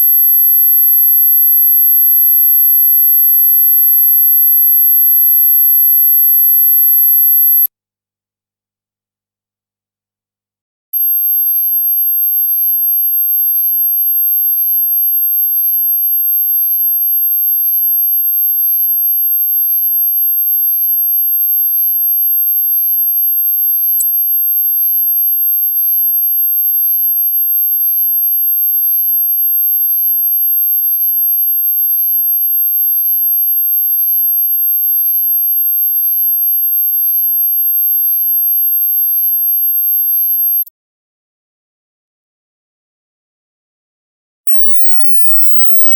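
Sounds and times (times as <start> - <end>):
high-pitched sine tone: 0.0 - 7.7, 11.0 - 15.1, 35.0 - 40.7, 44.5 - 45.9.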